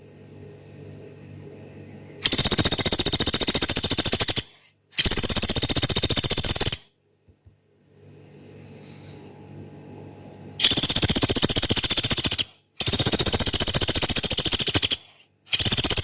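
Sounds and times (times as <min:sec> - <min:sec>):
woodpecker rattling calls: 0:02.3 - 0:06.8, 0:10.6 - 0:16.0.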